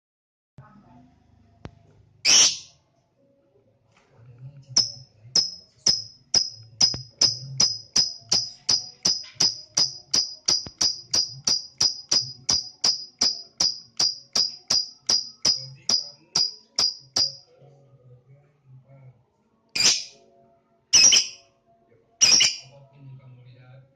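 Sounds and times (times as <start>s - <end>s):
lovebird high chirps: 2.2s - 2.8s, 19.8s - 20.2s, 21.0s - 21.5s, 22.2s - 22.8s
lovebird shrill squawk: 2.2s - 2.8s, 19.8s - 20.2s, 21.0s - 21.4s, 22.2s - 22.7s.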